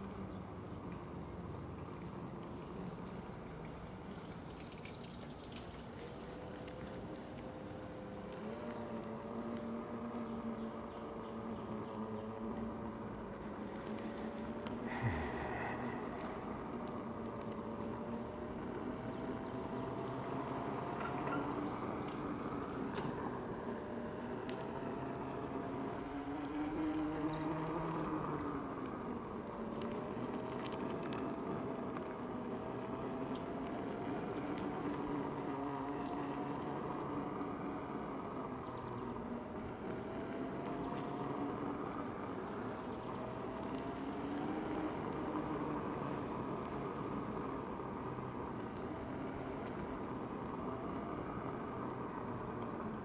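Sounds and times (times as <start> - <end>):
vehicle in motion: 0.0 - 53.0
road noise: 4.4 - 53.0.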